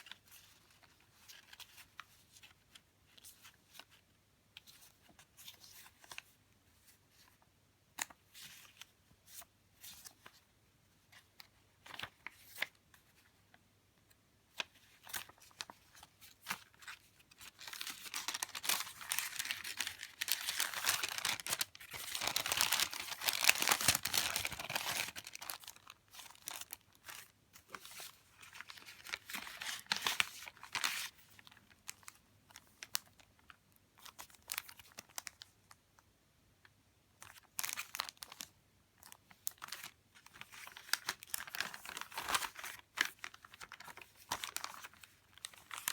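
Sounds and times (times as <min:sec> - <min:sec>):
paper and plastic rustling: 0:14.6 - 0:33.3, 0:37.2 - 0:45.9
plastic sleeve crinkling: 0:15.0 - 0:35.5, 0:37.2 - 0:45.9.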